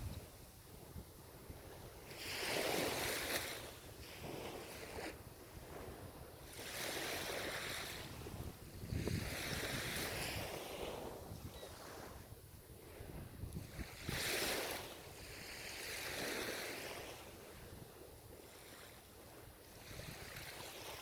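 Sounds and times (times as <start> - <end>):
ocean waves breaking: 1.5 - 12.2.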